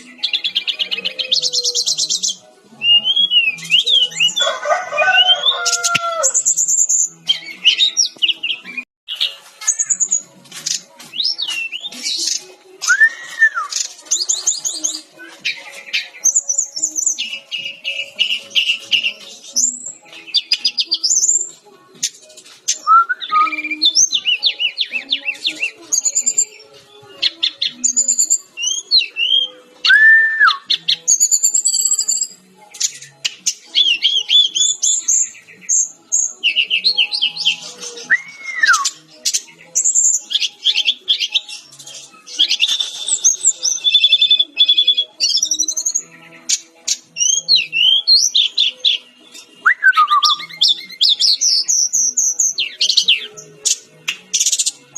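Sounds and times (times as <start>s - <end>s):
bird singing chattering song: 0.0s - 4.5s, 5.2s - 54.9s
bird whistles: 38.0s - 39.0s, 49.6s - 51.9s.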